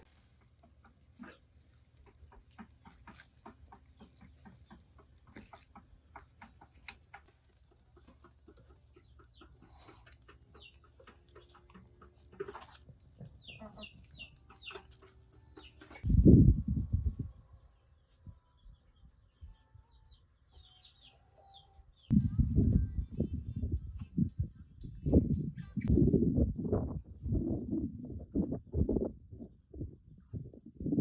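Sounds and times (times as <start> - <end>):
chickens clucking: 0.0 - 16.1.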